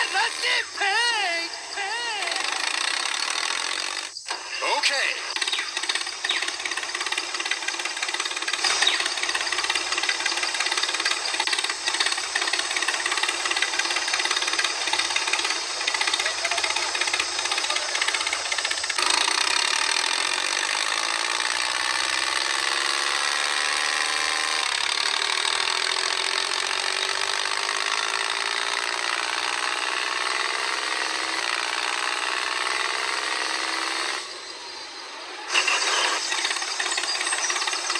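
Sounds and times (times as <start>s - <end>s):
motor running: 0.0s - 37.9s.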